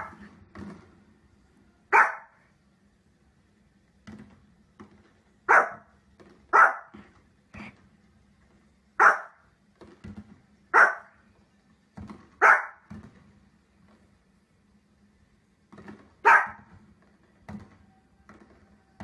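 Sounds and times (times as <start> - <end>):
small dog barking: 0.0 - 0.2, 1.9 - 2.4, 5.5 - 5.9, 6.5 - 7.0, 9.0 - 9.4, 10.7 - 11.2, 12.4 - 12.9, 16.2 - 16.7.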